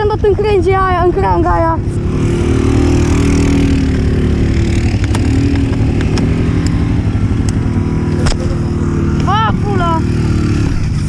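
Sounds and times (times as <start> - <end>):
atv engine running: 0.0 - 11.0
sharp clicks: 5.0 - 6.8, 7.4 - 8.6.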